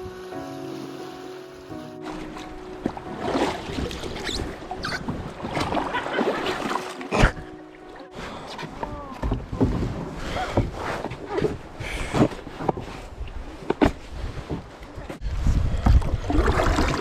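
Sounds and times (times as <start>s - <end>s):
water splashing: 1.4s - 11.7s, 16.0s - 17.0s.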